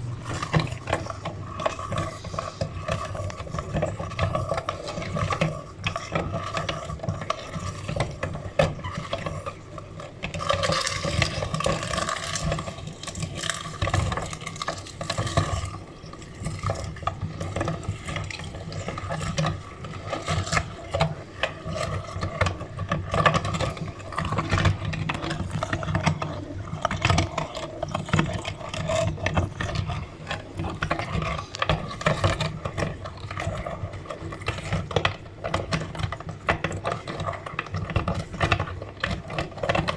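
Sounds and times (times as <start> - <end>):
meat grinder churning: 0.0 - 39.9.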